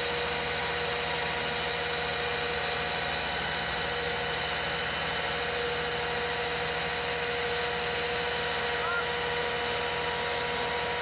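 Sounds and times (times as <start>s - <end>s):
heavy vehicle engine running: 0.0s - 11.0s
even whine: 5.3s - 11.0s.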